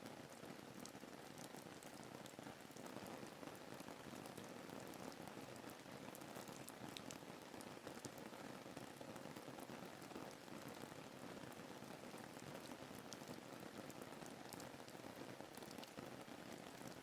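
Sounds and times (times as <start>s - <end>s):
raindrop ticks: 6.4s - 7.2s, 15.5s - 16.0s.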